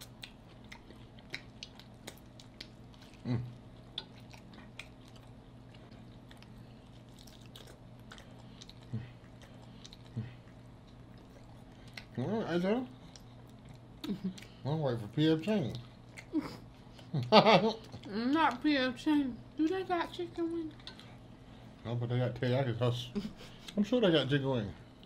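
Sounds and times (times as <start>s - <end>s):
chewing crunchy chicken wings: 0.0s - 12.2s, 12.8s - 18.6s.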